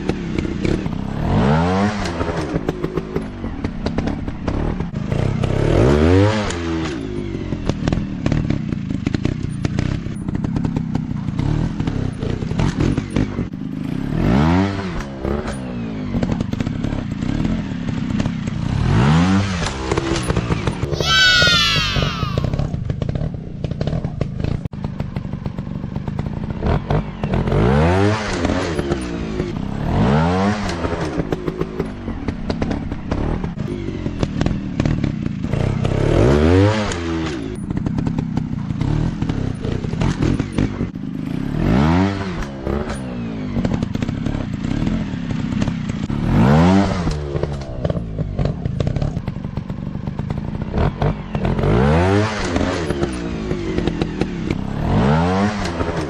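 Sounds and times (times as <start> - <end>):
dirt bike engines revving: 17.1 - 22.7.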